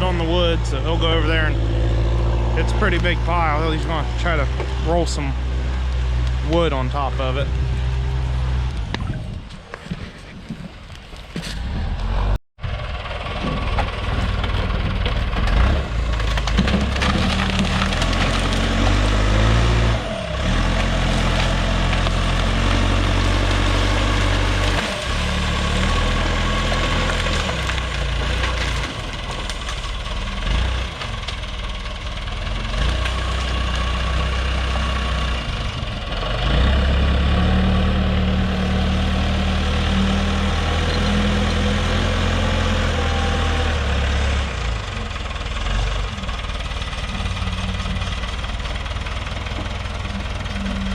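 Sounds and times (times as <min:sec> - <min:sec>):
diesel engine working under load: 0:00.0 - 0:50.9
wood crunching and snapping: 0:13.6 - 0:35.4.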